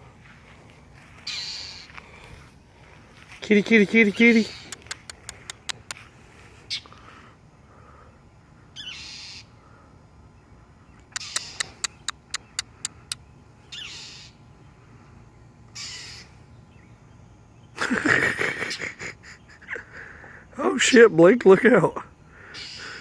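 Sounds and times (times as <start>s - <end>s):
bird clicking alarm calls: 1.2s - 1.9s, 4.1s - 6.0s, 11.0s - 14.4s
bird harsh rasping calls: 1.2s - 2.3s, 3.8s - 6.0s, 6.6s - 7.2s, 8.7s - 9.6s, 11.0s - 14.5s, 15.7s - 16.5s, 22.4s - 23.0s.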